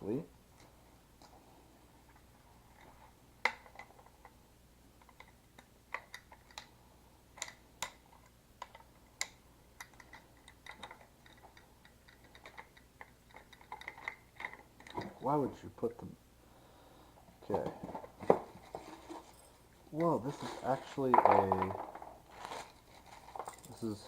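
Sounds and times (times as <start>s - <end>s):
rifle parts and packaging clicking: 7.3s - 15.2s, 17.6s - 24.0s.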